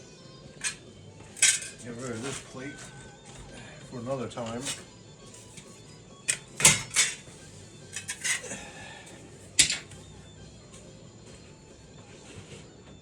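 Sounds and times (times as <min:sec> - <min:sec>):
metal clanks and knocks: 0:00.6 - 0:01.8, 0:06.3 - 0:07.3, 0:08.0 - 0:08.5, 0:09.6 - 0:09.9.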